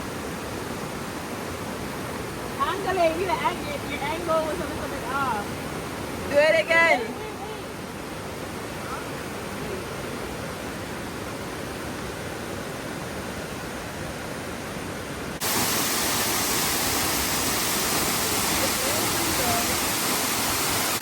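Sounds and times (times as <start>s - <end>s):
steady rushing noise: 15.2s - 21.0s.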